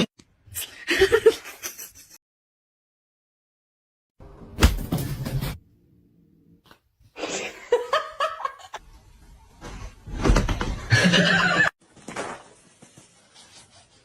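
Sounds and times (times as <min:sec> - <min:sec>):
person laughing: 0:00.9 - 0:02.2.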